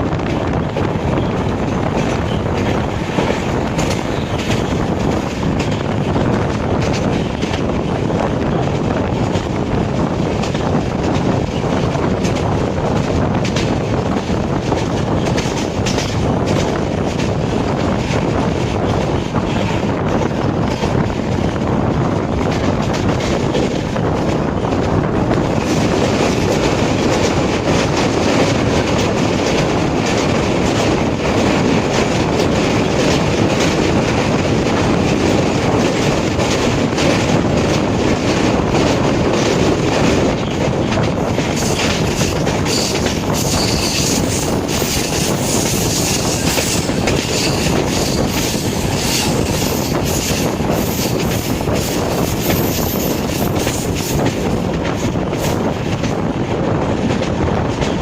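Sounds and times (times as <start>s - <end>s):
train rumble: 0.0s - 58.0s
wheels clacking over rail joints: 10.3s - 21.4s.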